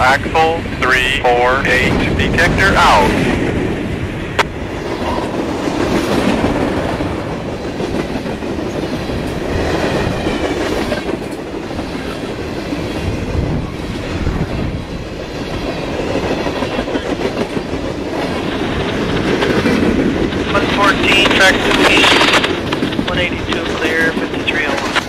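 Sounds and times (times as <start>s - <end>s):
train wheels clattering: 4.7s - 13.3s, 15.1s - 25.0s.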